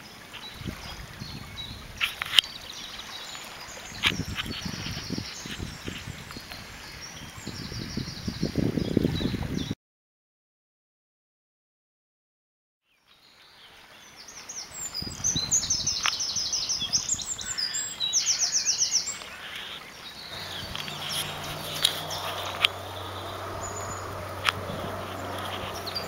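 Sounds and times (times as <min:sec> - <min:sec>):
songbirds singing: 0:00.0 - 0:09.8, 0:12.9 - 0:26.0
low hum: 0:20.3 - 0:26.0.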